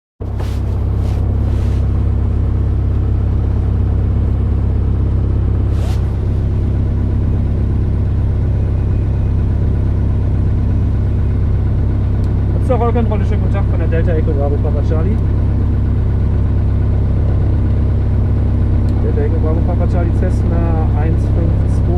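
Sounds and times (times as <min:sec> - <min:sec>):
piston aircraft engine running: 0:00.2 - 0:21.9
brief rustle: 0:00.3 - 0:01.9, 0:05.7 - 0:06.4.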